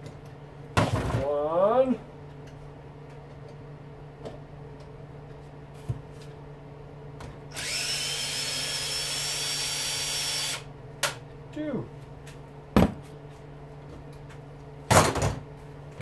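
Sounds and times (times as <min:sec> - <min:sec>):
low steady hum: 0:00.0 - 0:16.0
power drill whining: 0:07.5 - 0:10.7.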